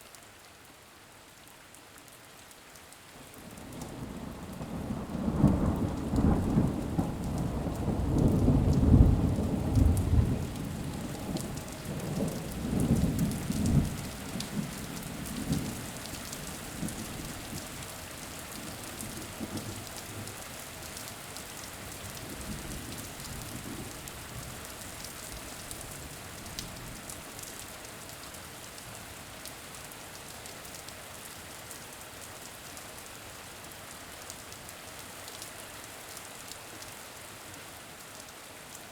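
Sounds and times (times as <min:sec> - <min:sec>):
steady rain: 0:00.0 - 0:38.9
thunder rumbling: 0:04.4 - 0:15.8.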